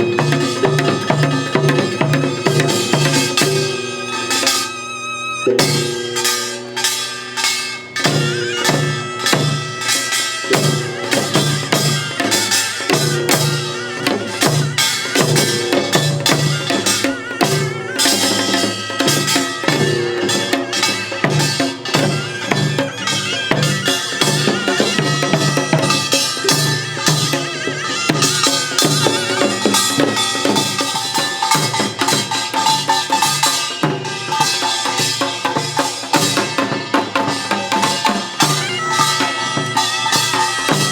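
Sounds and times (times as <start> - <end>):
drums and gongs playing: 0.0 - 40.9
held melodic line: 0.0 - 40.9.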